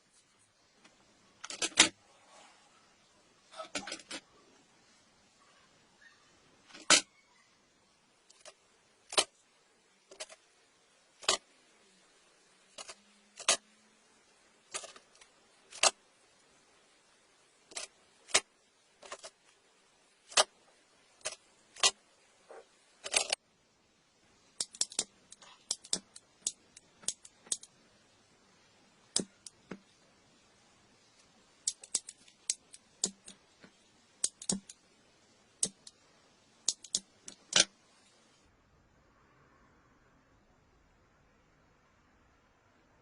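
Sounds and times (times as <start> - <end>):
small objects clicking and tapping: 10.1 - 10.4, 11.2 - 11.5, 14.7 - 16.0, 24.5 - 27.7, 29.1 - 29.9, 31.2 - 34.8, 35.6 - 36.0, 36.6 - 37.7.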